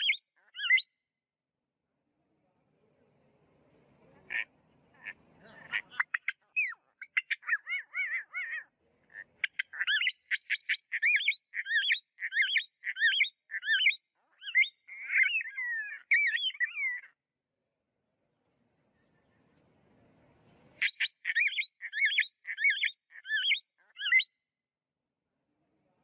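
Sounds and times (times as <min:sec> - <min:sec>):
bird singing slurred whistles: 0:00.0 - 0:00.9, 0:09.5 - 0:17.1, 0:20.8 - 0:24.3.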